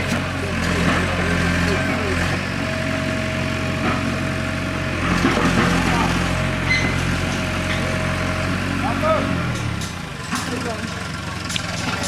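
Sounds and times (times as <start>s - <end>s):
people talking: 0.0s - 2.4s, 5.6s - 6.4s, 8.8s - 9.4s, 10.3s - 11.1s, 11.7s - 12.0s
motor engine idling: 0.0s - 12.0s.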